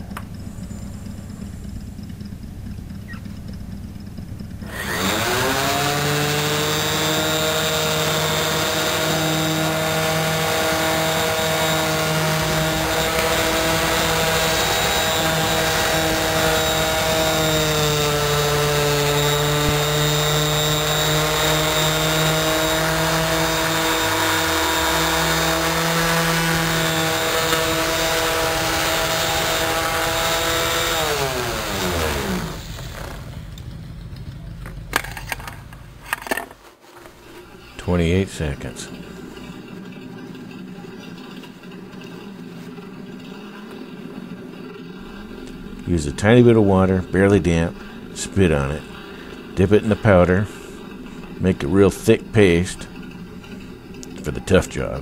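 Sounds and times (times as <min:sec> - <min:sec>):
orbital sander whining: 0:00.0 - 0:35.0, 0:44.8 - 0:53.0.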